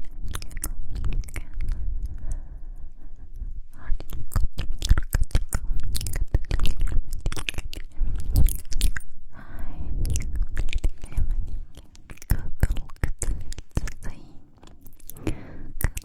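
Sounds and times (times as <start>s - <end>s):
wet lip and tongue clicks: 0.0s - 2.3s, 3.8s - 9.2s, 10.0s - 16.0s
breathy whisper: 9.3s - 16.0s.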